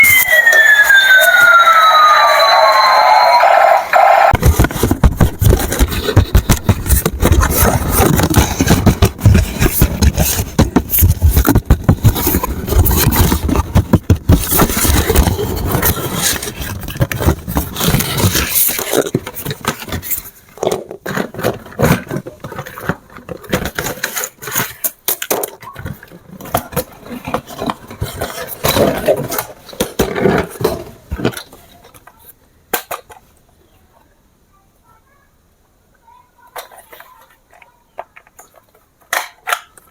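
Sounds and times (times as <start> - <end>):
scraping and crackling handling noise: 4.4 - 33.4, 36.5 - 39.9.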